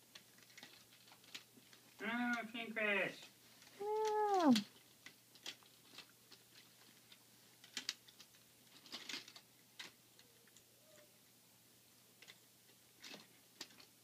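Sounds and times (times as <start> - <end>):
toy train pieces clicking: 0.0 - 2.5, 3.6 - 11.1.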